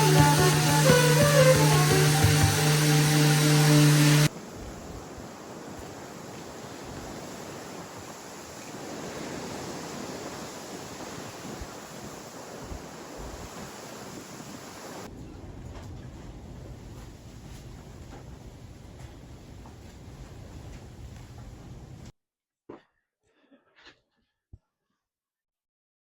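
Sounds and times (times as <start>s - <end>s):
wind: 4.3s - 22.1s.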